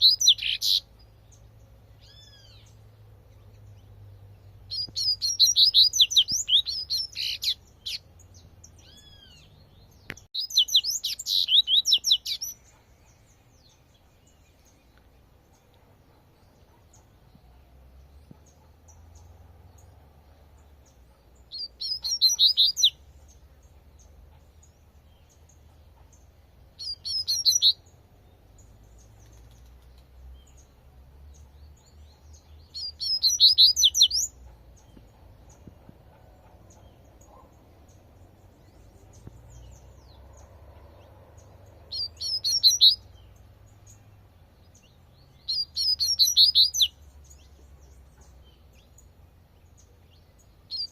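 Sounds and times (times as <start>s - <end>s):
bird whistling song: 0.0s - 0.9s, 4.7s - 8.0s, 8.7s - 12.8s, 21.5s - 23.0s, 26.8s - 27.9s, 32.4s - 35.7s, 41.9s - 43.3s, 44.8s - 47.4s, 50.7s - 50.9s.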